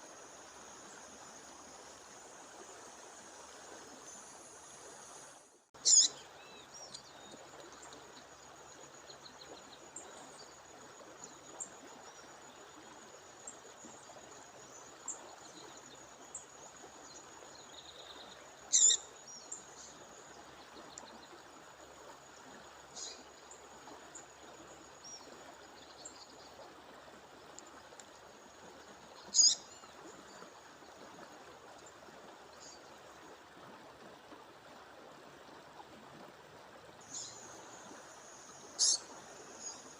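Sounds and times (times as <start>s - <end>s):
rushing stream: 0.0s - 39.9s
songbird sharp call: 5.8s - 6.2s, 18.7s - 19.0s, 29.3s - 29.6s, 38.8s - 39.8s
faint bird chirps: 5.8s - 7.4s, 17.9s - 19.9s, 29.2s - 29.9s, 38.7s - 39.9s.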